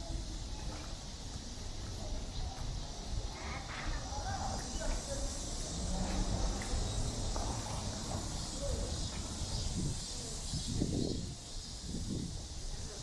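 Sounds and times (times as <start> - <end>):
faint voices of passersby: 0.0 - 13.0
high-pitched hiss: 6.8 - 13.0.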